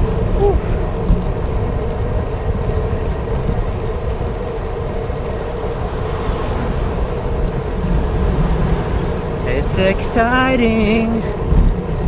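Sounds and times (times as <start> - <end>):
bicycle road noise: 0.0 - 12.0
mid-pitched hum: 0.0 - 12.0
wind rumbling on microphone: 0.0 - 12.0.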